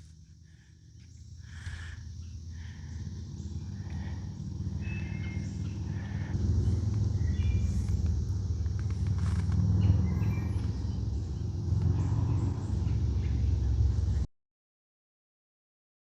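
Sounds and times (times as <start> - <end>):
faint bird chirps: 0.0 - 14.3
wind rumble on microphone: 2.1 - 14.3.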